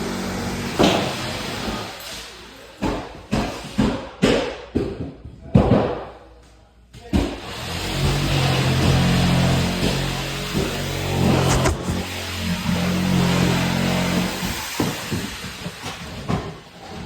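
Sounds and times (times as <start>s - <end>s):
knocks and scuffs of crawling: 11.3s - 12.0s.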